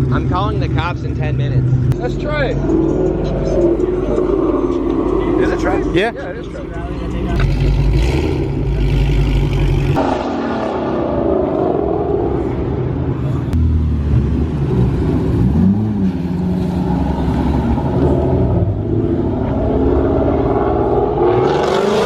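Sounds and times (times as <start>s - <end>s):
car engine running: 0.0s - 10.1s.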